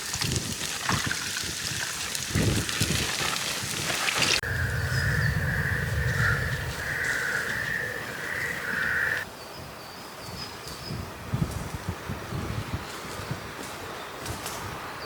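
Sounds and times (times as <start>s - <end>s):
pulsing insect-like buzz: 4.4s - 9.2s.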